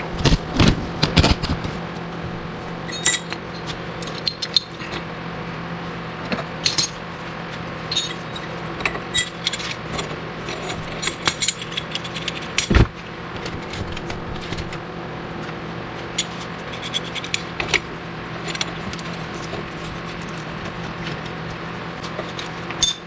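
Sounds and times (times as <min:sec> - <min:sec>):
steady hum: 0:00.0 - 0:23.0
metal tools clinking on steel: 0:02.8 - 0:04.8, 0:07.9 - 0:09.8.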